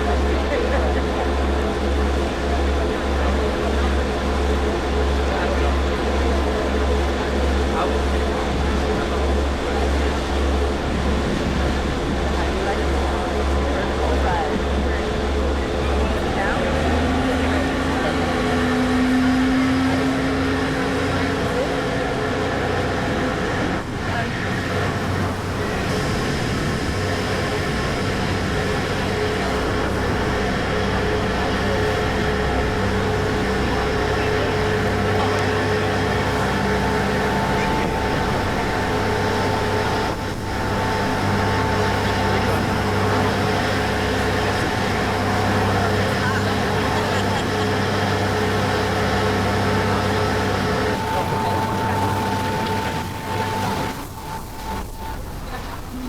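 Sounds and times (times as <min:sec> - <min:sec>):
ferry engines droning: 0:00.0 - 0:56.0
thin steady whine: 0:00.0 - 0:56.0
water rushing: 0:00.0 - 0:56.0
wind: 0:00.0 - 0:56.0.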